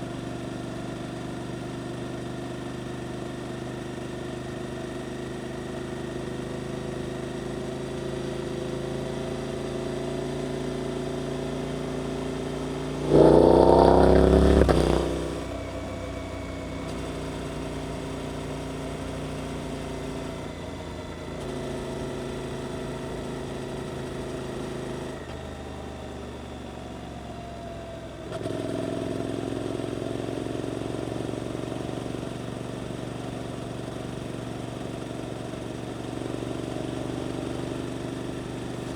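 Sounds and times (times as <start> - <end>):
motorcycle engine accelerating: 12.1 - 19.1.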